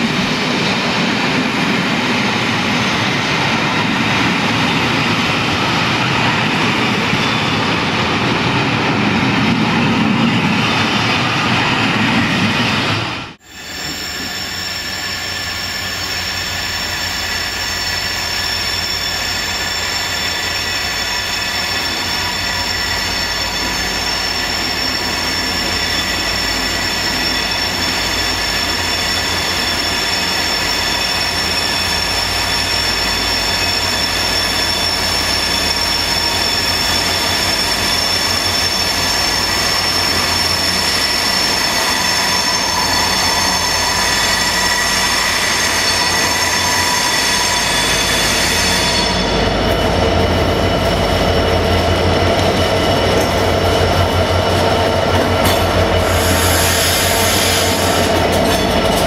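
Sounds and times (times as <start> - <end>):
train rumbling with high whine: 0.0 - 59.0.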